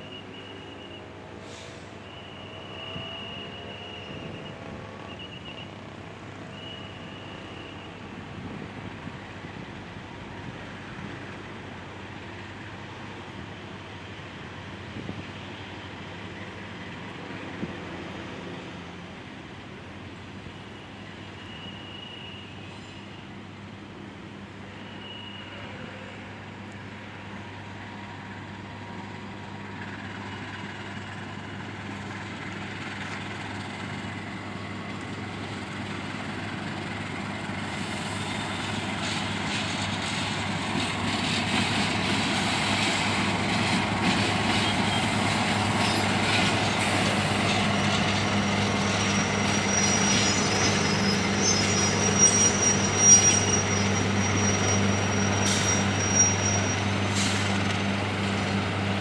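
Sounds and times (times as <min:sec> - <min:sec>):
high wheel squeal: 0:01.6 - 0:05.7, 0:06.5 - 0:08.0, 0:20.6 - 0:23.4, 0:24.6 - 0:26.4, 0:44.5 - 0:57.8.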